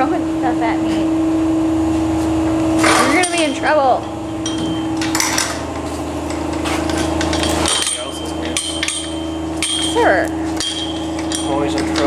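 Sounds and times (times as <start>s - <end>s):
mechanical hum: 0.0s - 12.0s
metallic clinks and taps: 3.2s - 12.0s.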